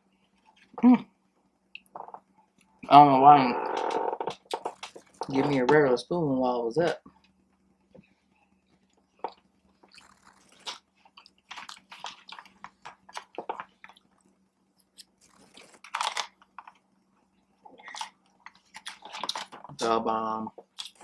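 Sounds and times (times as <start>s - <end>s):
person chewing cake: 8.8s - 15.9s, 20.6s - 21.0s
wet mouth sounds: 9.2s - 12.5s.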